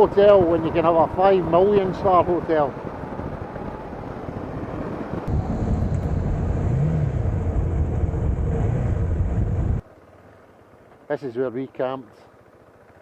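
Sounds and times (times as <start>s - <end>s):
wind and road rush: 0.0s - 9.9s
motorcycle engine running: 5.3s - 10.8s.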